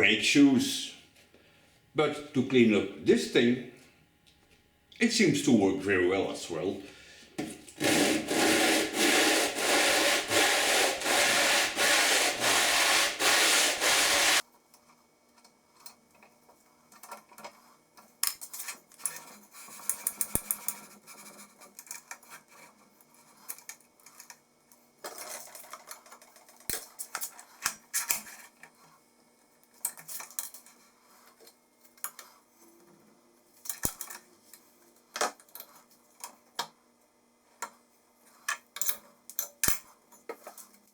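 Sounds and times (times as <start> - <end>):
metal part rubbed on abrasive: 7.8 - 14.4
light clicks and scrapes: 14.8 - 36.6, 40.1 - 40.9.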